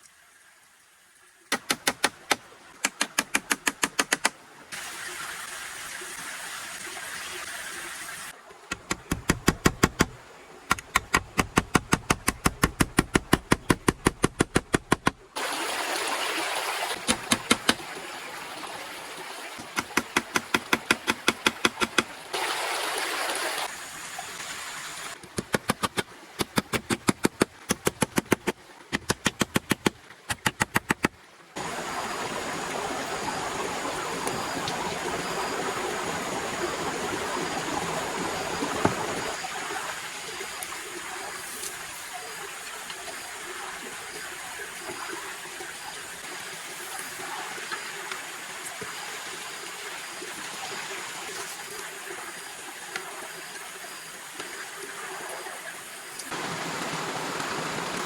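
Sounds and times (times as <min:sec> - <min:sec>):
sharp evenly spaced knocks: 0:01.5 - 0:04.4, 0:08.7 - 0:15.3, 0:17.0 - 0:17.8, 0:19.6 - 0:22.2, 0:25.2 - 0:31.2.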